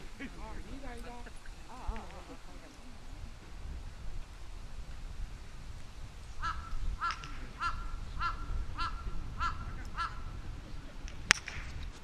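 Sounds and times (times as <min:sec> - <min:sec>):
bird calling: 0:06.4 - 0:10.4.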